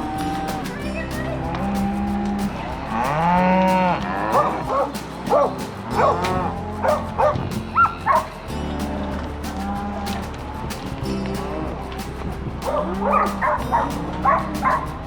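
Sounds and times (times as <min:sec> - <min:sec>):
background music: 0:00.0 - 0:15.0
dog barking and yipping: 0:04.3 - 0:08.3, 0:12.6 - 0:14.9.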